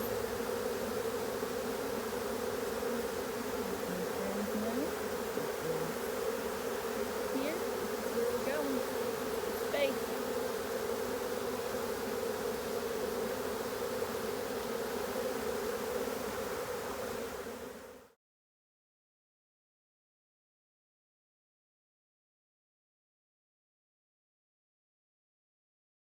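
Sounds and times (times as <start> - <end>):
bees buzzing: 0.0 - 18.1
single bee buzzing past: 0.0 - 18.2.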